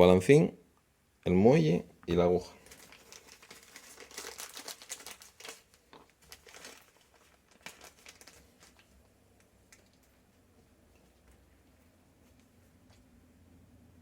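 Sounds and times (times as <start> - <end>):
plastic bag crinkling: 2.4 - 10.3.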